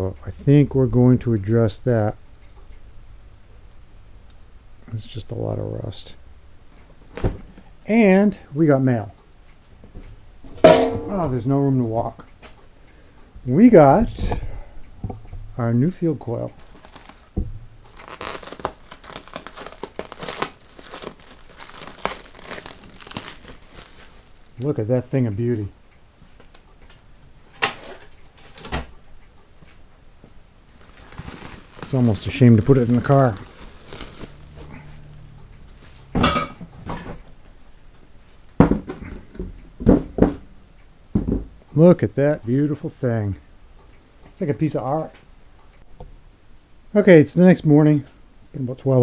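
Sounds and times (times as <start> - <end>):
packaging crinkling and tearing: 16.4 - 24.8, 30.7 - 36.1
objects knocking on a workbench: 41.2 - 41.5.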